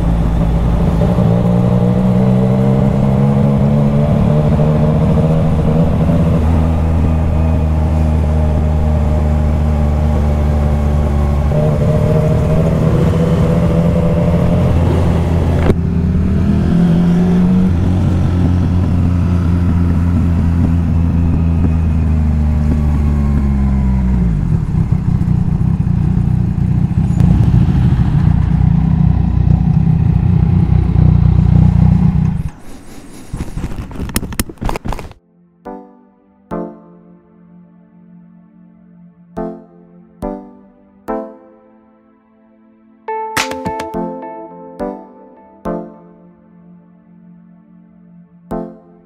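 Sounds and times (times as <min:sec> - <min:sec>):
motorcycle engine running: 0:00.0 - 0:32.6.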